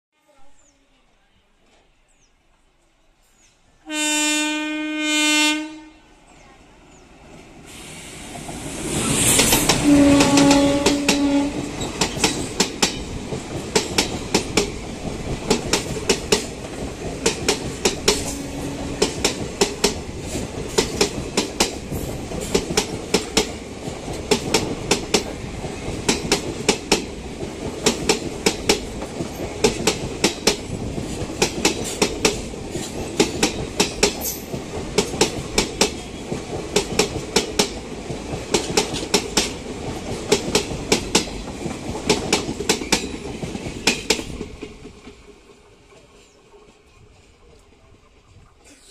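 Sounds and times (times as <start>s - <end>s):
train rushing past: 3.3s - 48.6s
train horn blasts: 3.8s - 6.2s, 9.7s - 11.8s, 18.2s - 19.2s
clickety-clack of train wheels: 8.3s - 48.7s.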